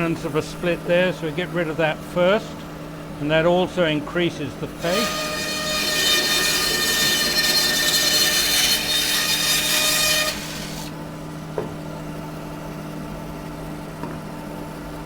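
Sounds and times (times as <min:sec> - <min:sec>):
bandsaw cutting wood: 0:04.7 - 0:11.0
bandsaw humming unloaded: 0:04.8 - 0:11.0.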